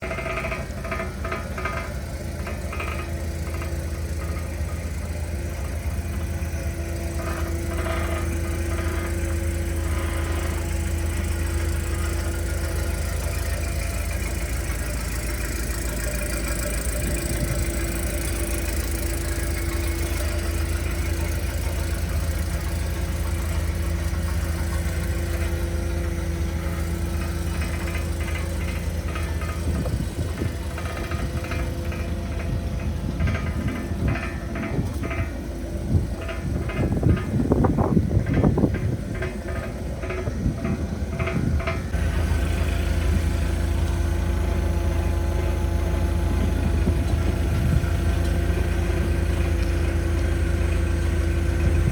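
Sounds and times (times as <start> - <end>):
light clicking and rattling: 0.0 - 43.2
forklift engine idling: 0.0 - 51.9.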